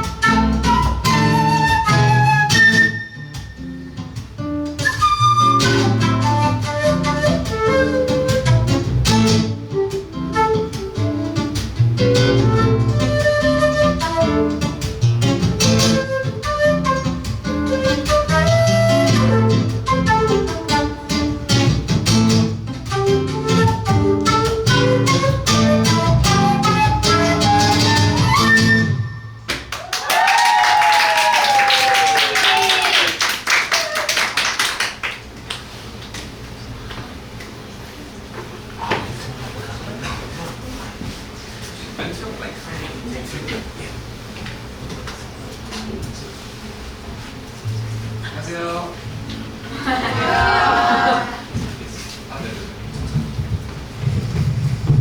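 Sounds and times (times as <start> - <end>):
flute melody: 0.0 - 29.7.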